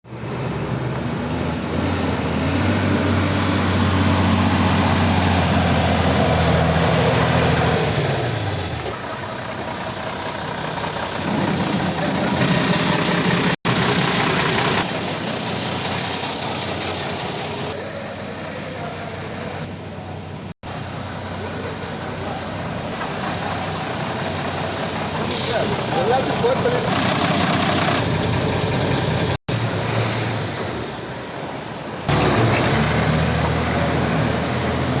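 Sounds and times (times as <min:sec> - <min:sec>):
diesel truck engine revving: 0:00.1 - 0:19.8, 0:20.4 - 0:31.3, 0:31.9 - 0:35.0.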